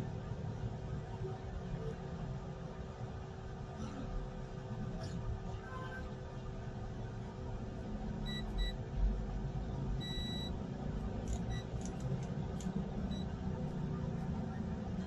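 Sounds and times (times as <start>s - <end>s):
low hum and rumble: 0.0s - 15.0s
short electronic beeps: 8.3s - 8.8s, 10.0s - 10.5s, 11.5s - 11.7s.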